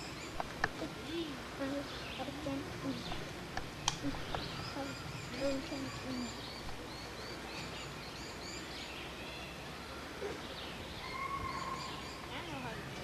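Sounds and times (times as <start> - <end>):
faint distant voices: 0.0 - 7.9
background hiss: 0.0 - 13.0
small birds chirping: 0.0 - 13.0
sharp click: 3.6 - 4.5.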